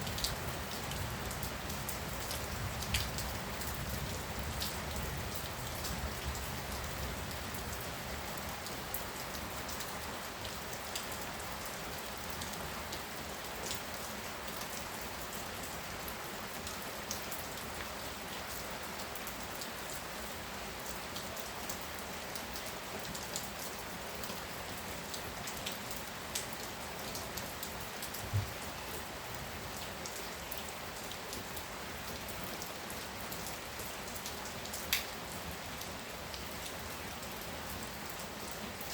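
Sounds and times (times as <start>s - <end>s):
heavy rain pouring: 0.0s - 38.9s
raindrops ticking: 33.3s - 35.2s.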